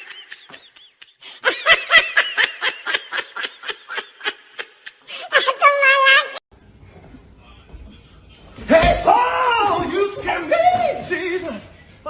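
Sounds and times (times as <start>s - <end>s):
person giggling: 0.0s - 5.6s.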